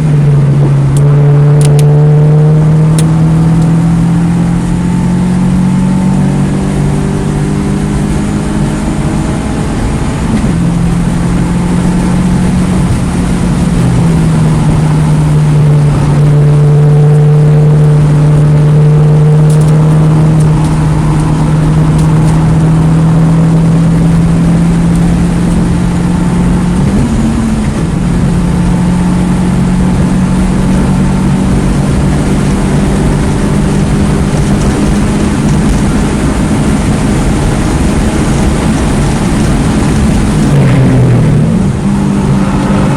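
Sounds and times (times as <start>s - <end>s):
car engine running hard: 0.0s - 42.9s
road and wind noise: 0.0s - 42.9s.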